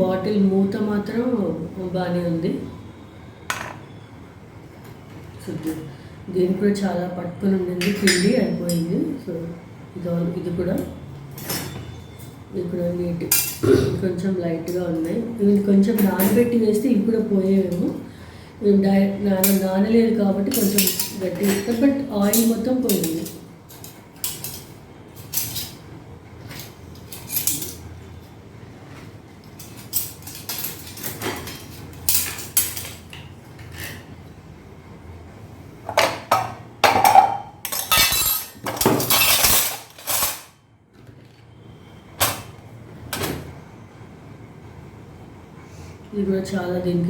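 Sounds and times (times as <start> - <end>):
kitchen utensils and dishes clattering: 7.8 - 8.9, 11.4 - 12.2, 13.3 - 13.7, 20.5 - 25.8, 26.4 - 27.9, 29.4 - 34.1, 35.9 - 40.6.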